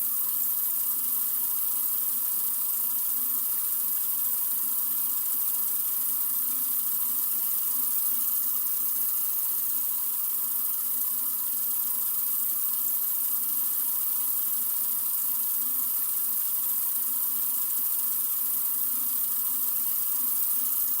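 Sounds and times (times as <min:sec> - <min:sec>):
sink faucet running: 0:00.0 - 0:21.0.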